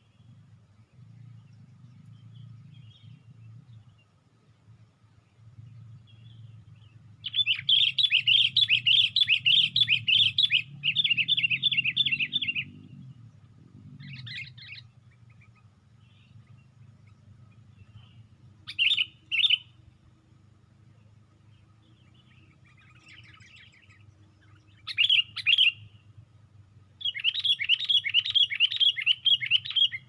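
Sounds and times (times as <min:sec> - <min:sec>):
bulbul chattering calls: 0:05.5 - 0:19.9, 0:21.0 - 0:26.1, 0:27.0 - 0:30.0.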